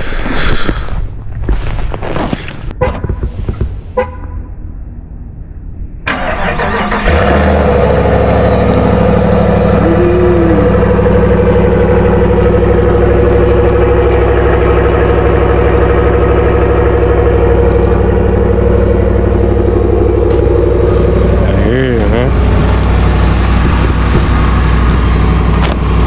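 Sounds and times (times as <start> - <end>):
truck engine idling: 4.0 - 26.0
pickup engine cranking: 6.1 - 26.0.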